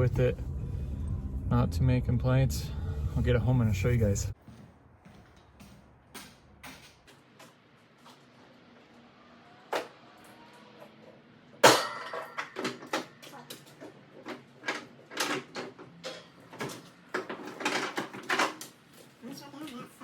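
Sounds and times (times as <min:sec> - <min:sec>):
knocks and clatters: 0:11.6 - 0:18.8.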